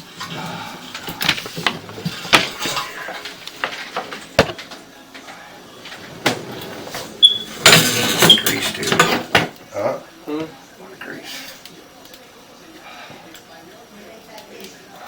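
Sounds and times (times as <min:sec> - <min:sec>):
clicks and knocks of handling: 0:01.0 - 0:05.4.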